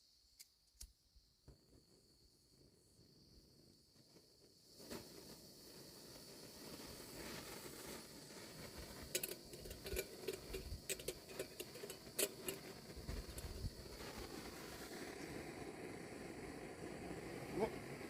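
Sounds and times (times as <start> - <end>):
light clicks and knocks: 9.1 - 12.7.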